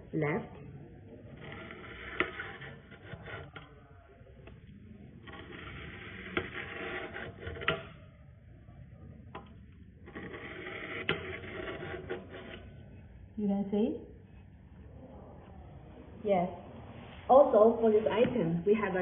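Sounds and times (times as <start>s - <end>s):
blade scraping on sharpener rods: 1.4s - 3.7s, 5.2s - 8.0s, 10.1s - 12.8s.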